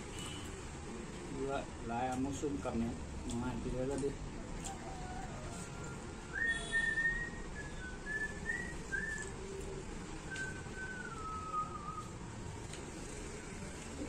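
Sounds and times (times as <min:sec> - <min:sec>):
person whistling a tune: 0:06.3 - 0:09.3, 0:10.3 - 0:12.2.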